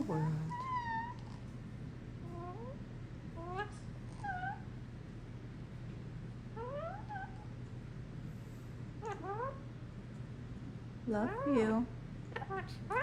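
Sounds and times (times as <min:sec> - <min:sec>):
parrot calls: 0:00.0 - 0:01.4, 0:03.4 - 0:04.8, 0:06.5 - 0:07.6, 0:09.0 - 0:09.7, 0:12.3 - 0:13.0
steady low hum: 0:00.0 - 0:13.0.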